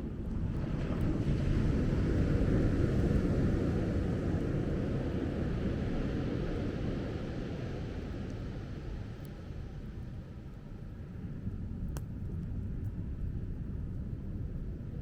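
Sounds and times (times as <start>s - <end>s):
wind: 0.0s - 15.0s
surf washing onto beach: 0.4s - 9.2s.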